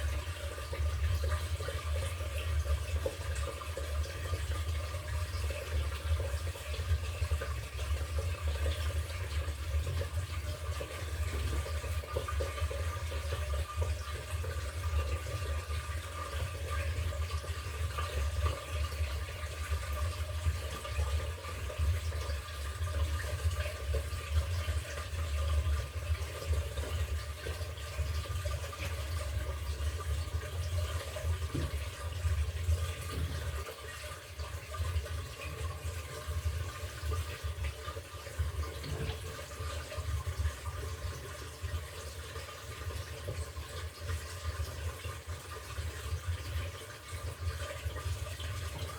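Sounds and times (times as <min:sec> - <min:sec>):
washing machine hum: 0:00.0 - 0:48.9
water splashing in washing machine: 0:00.0 - 0:48.9.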